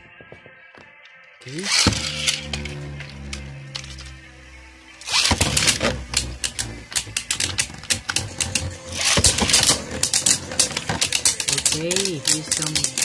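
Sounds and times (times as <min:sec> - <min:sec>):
spinning tops launched: 0:01.5 - 0:13.0
spinning tops clashing: 0:05.0 - 0:13.0.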